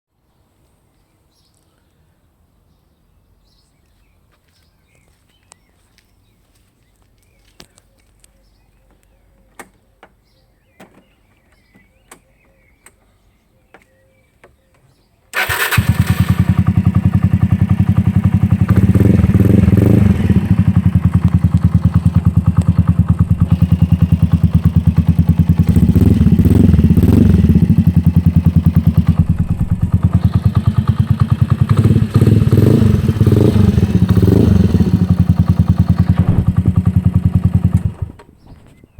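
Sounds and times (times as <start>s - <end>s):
scooter engine idling and revving: 15.4s - 38.2s.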